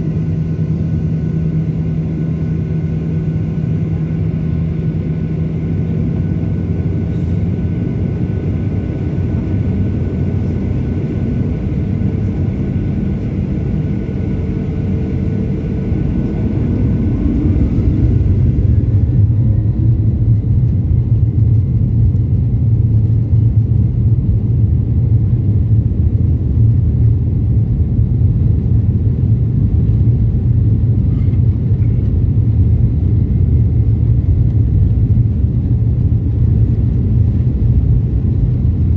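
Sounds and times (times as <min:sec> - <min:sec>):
jet engines spooling up: 0:00.0 - 0:20.1.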